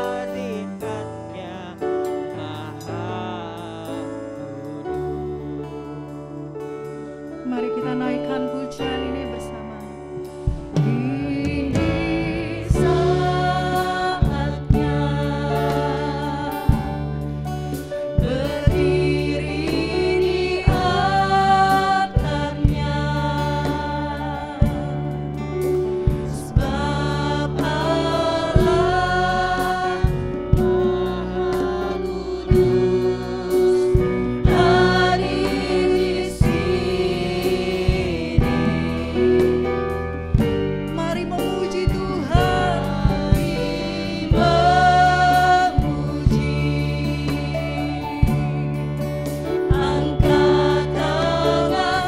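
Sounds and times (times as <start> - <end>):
band with keyboard bass and drums: 0.0 - 52.0
voices singing together: 10.8 - 25.4, 26.0 - 40.0, 41.1 - 48.6, 49.4 - 52.0.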